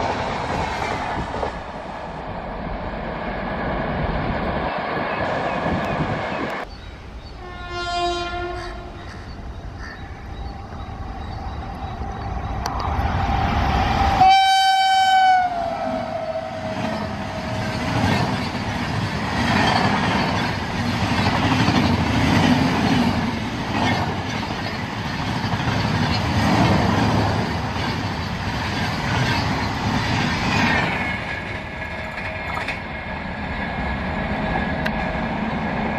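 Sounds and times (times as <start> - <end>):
train rumbling past: 0.0 - 35.9
train horn blast: 7.4 - 9.0, 14.1 - 17.9.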